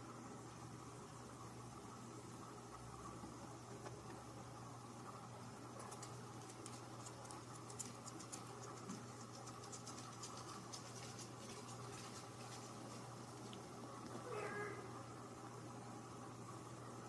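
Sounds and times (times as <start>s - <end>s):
steady low hum: 0.0s - 17.0s
light scratching and clicks: 5.8s - 14.2s.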